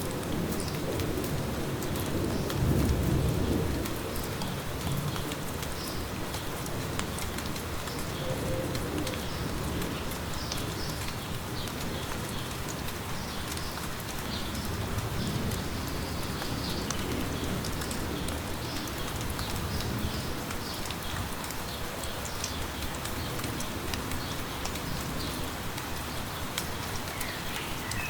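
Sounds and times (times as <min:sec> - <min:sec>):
light rain pattering: 0:00.0 - 0:28.0
small birds chirping: 0:24.2 - 0:28.0.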